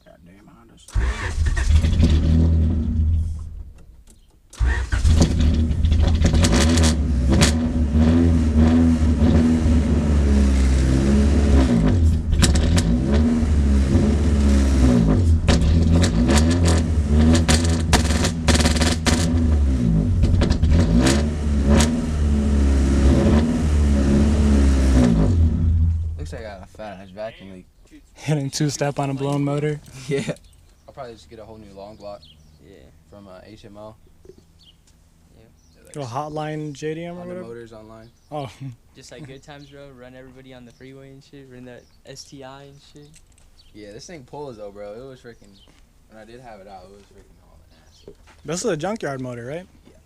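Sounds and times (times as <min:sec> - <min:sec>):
car engine starting and revving: 0:00.9 - 0:03.8, 0:04.6 - 0:26.9.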